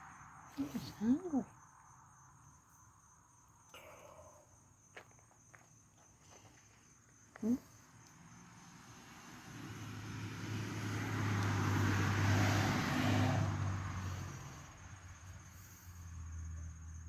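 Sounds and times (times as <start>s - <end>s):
motor vehicle passing by: 7.4s - 17.0s.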